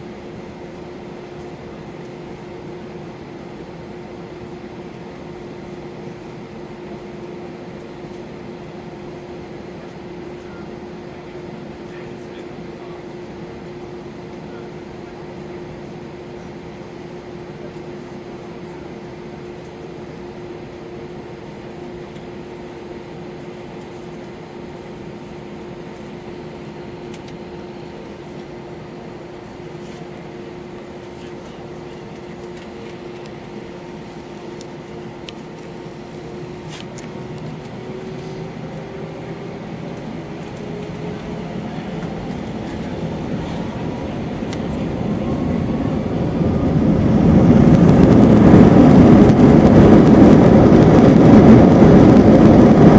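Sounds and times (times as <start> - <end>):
jet engines spooling up: 0.0 - 52.9.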